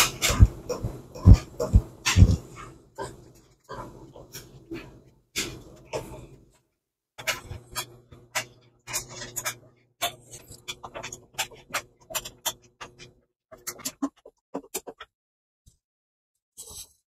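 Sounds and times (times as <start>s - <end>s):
steady low hum: 0.0s - 6.5s.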